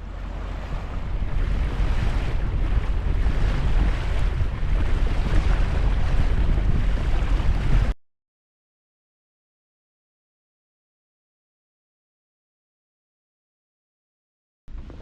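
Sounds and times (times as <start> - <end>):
water rushing along hull: 0.0 - 8.0, 14.7 - 15.0
wind buffeting microphone: 0.0 - 8.0.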